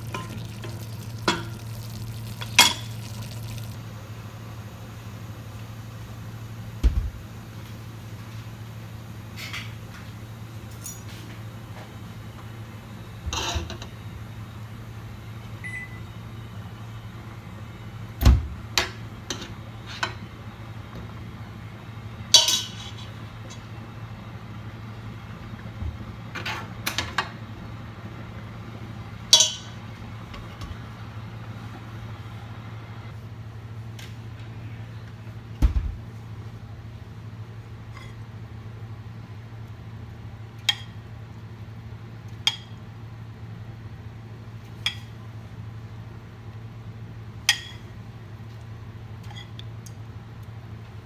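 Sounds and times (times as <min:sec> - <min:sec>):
kitchen appliance humming: 0:00.0 - 0:33.3.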